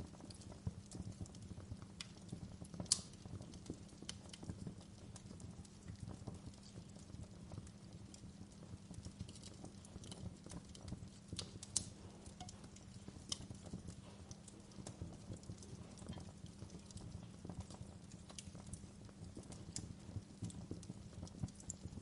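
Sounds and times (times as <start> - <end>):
fire crackling and popping: 0.0 - 22.0
low rumble of fire: 0.0 - 22.0.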